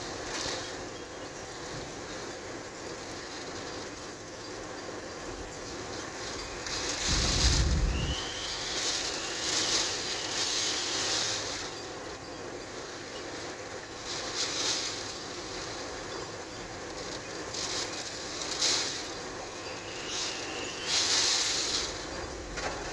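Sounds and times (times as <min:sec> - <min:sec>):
wind and rain gusting: 0:05.4 - 0:12.2
thunder rumble: 0:06.5 - 0:11.0.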